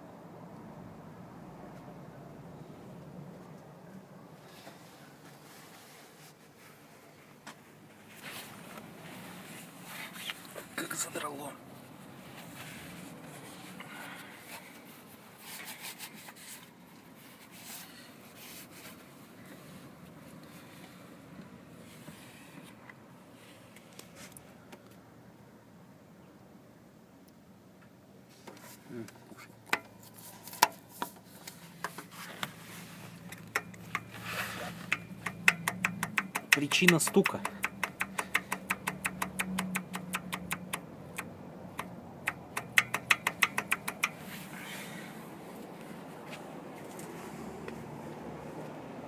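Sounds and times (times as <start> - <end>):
short rustle: 4.4 - 10.8, 28.3 - 34.9
hands handling metal engine parts: 28.3 - 47.2.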